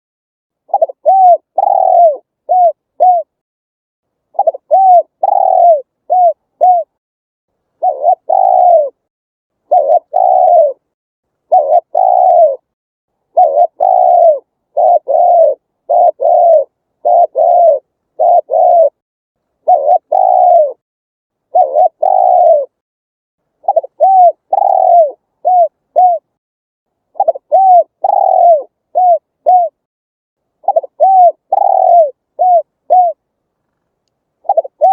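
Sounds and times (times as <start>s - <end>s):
dove cooing: 0.7s - 3.4s, 4.4s - 7.0s, 7.8s - 9.1s, 9.7s - 10.9s, 11.5s - 12.7s, 13.3s - 19.0s, 19.6s - 20.8s, 21.5s - 22.8s, 23.6s - 26.4s, 27.1s - 29.9s, 30.6s - 33.2s, 34.4s - 34.9s.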